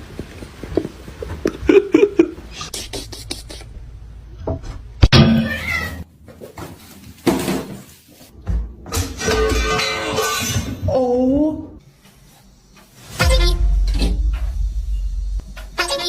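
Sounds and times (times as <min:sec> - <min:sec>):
cat meowing: 0:05.4 - 0:06.1.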